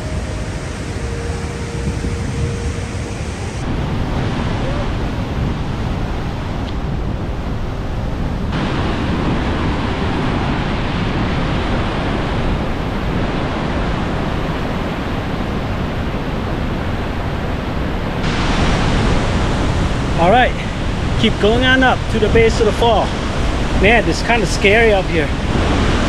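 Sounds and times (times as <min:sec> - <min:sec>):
waterfall rushing: 0:00.0 - 0:04.6, 0:08.5 - 0:22.0
wind buffeting microphone: 0:00.0 - 0:26.0.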